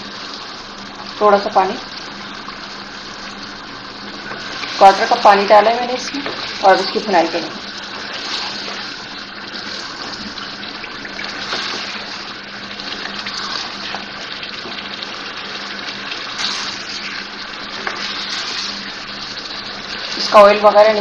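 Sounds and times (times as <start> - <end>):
food sizzling in oil: 0.0 - 21.0.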